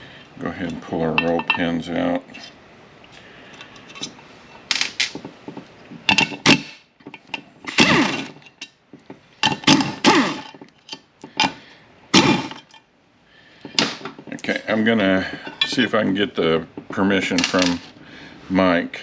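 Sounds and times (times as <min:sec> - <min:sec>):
metal scraping and clinking: 0:03.5 - 0:11.6.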